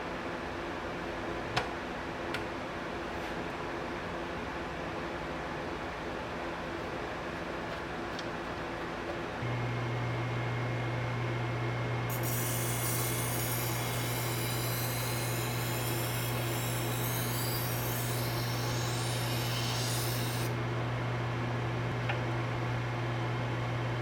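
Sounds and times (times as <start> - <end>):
hissing grind of workpiece: 12.1 - 20.5
belt grinder running: 12.1 - 20.6.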